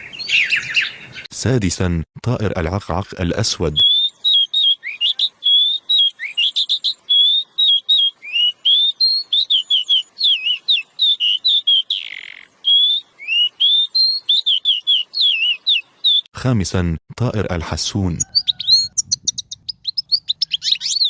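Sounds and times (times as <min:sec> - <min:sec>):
songbird singing: 0:00.0 - 0:01.3, 0:03.0 - 0:16.3, 0:17.8 - 0:21.0
harsh bird rasp: 0:18.2 - 0:21.0.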